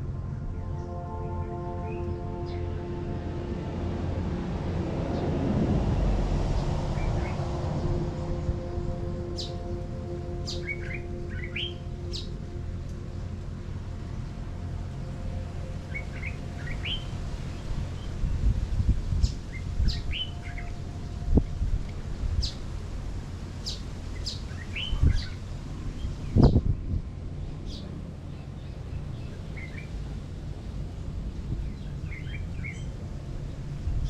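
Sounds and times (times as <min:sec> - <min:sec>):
low rumble: 0:00.0 - 0:34.0
small birds chirping: 0:23.6 - 0:25.4.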